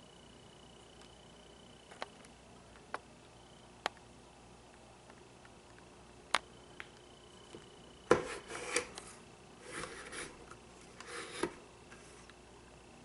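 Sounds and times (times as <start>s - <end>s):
scraping and rubbing of stand parts: 8.2s - 12.2s.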